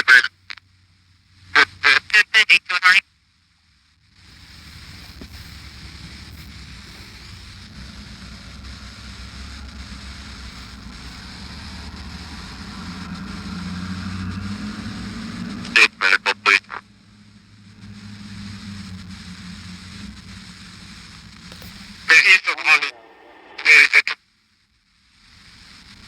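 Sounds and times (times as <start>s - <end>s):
aircraft engine and cabin noise: 4.2s - 23.7s.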